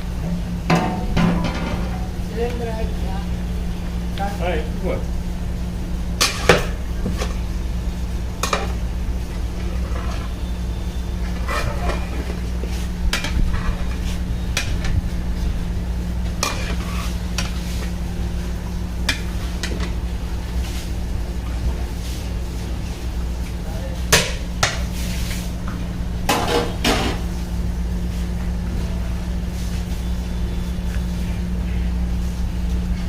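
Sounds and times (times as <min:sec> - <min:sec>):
steady low hum: 0:00.0 - 0:33.0
metal utensils scraping a pot: 0:09.6 - 0:10.4, 0:11.3 - 0:12.4, 0:13.1 - 0:14.0, 0:16.4 - 0:17.2.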